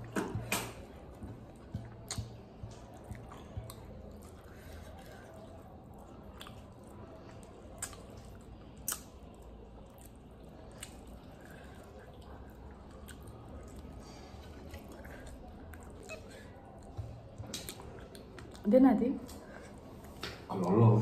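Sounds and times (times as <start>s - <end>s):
soft chewing: 0.0s - 21.0s
mouth clicks: 8.8s - 9.2s.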